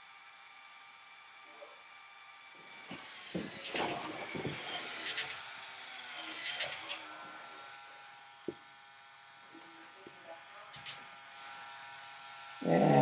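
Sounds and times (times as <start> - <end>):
toy motor whirring: 2.9 - 7.4, 10.7 - 13.0
clicking and rattling gears: 3.4 - 5.5, 6.2 - 7.0, 10.8 - 11.0.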